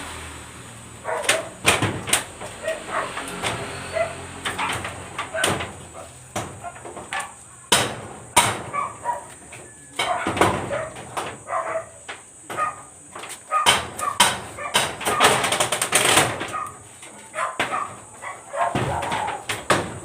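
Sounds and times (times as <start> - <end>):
hammer knocking on wood: 4.5 - 8.8, 13.6 - 16.6, 17.6 - 20.0.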